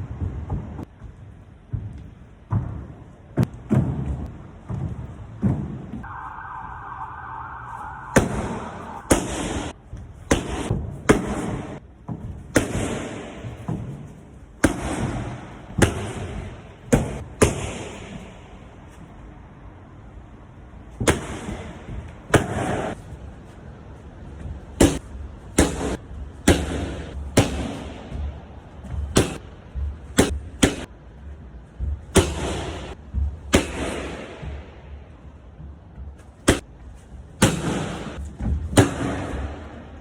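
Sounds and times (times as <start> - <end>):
sharp impacts: 6.0 - 10.7.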